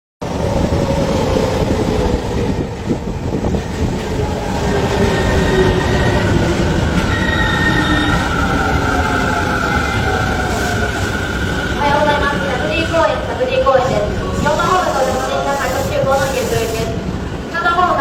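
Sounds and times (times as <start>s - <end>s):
train rumbling: 0.2s - 18.0s
high squealing tones: 5.0s - 11.6s.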